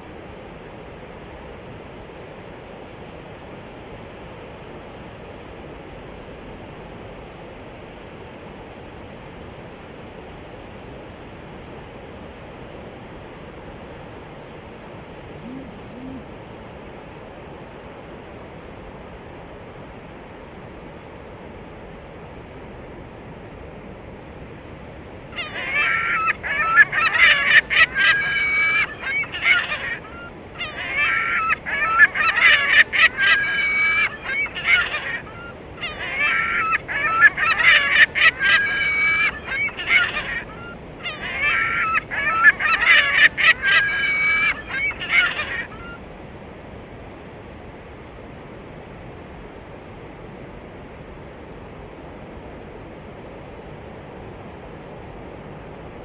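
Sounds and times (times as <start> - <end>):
honking bird calls: 15.4 - 16.4.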